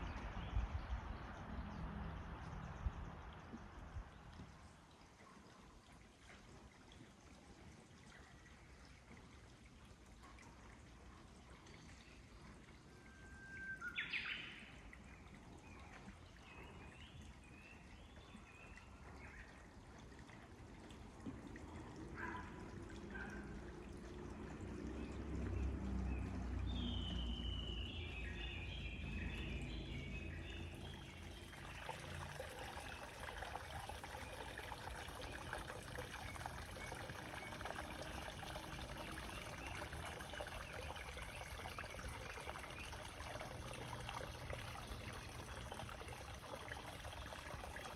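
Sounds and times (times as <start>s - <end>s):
trickling water: 0.0s - 47.9s
small birds chirping and trilling: 26.8s - 32.2s.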